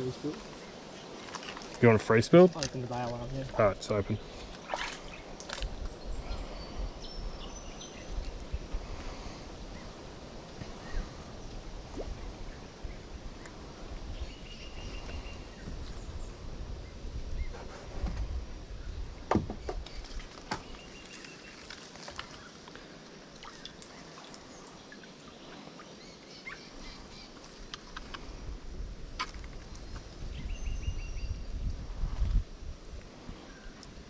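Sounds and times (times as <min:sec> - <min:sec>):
creek water: 0:00.0 - 0:30.4.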